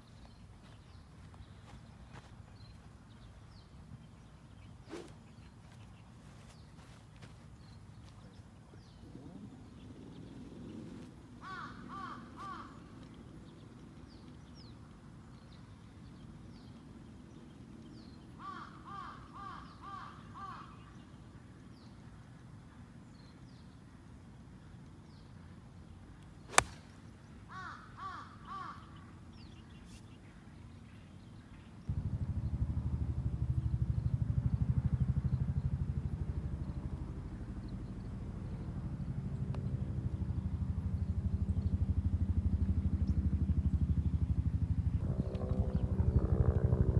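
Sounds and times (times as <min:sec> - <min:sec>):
crows cawing: 0:11.4 - 0:12.8, 0:18.4 - 0:20.7, 0:27.5 - 0:28.9
golf club striking ball: 0:26.5 - 0:27.1
vehicle engine rumbling: 0:43.4 - 0:46.9.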